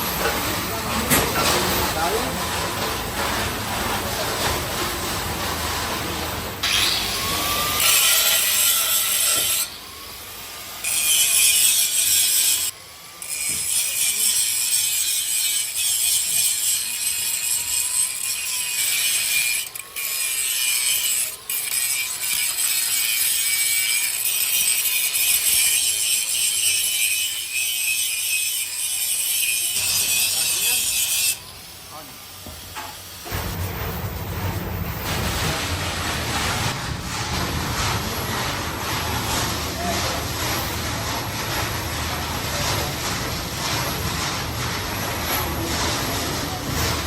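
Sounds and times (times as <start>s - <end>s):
tool scraping metal: 0.0s - 47.0s.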